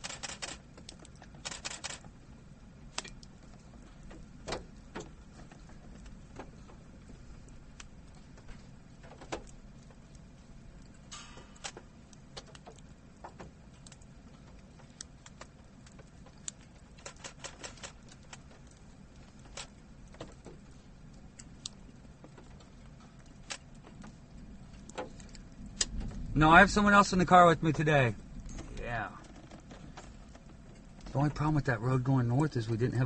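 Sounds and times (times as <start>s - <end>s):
low hum inside car: 17.8s - 33.0s.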